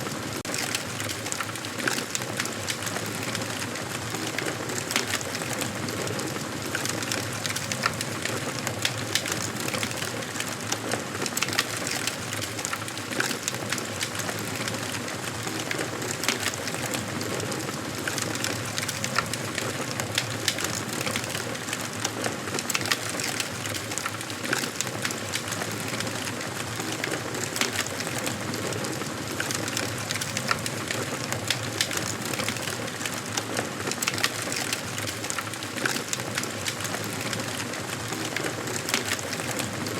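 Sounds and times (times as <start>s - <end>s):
wood crackling and popping: 0.1s - 39.9s.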